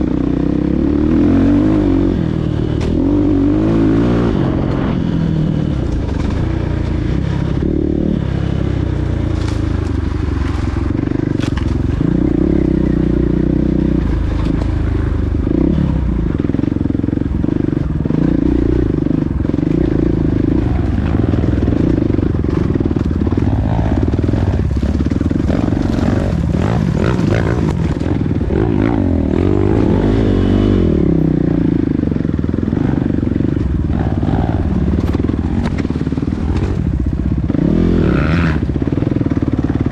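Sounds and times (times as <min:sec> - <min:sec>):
motorbike engines revving: 0:00.0 - 0:39.9.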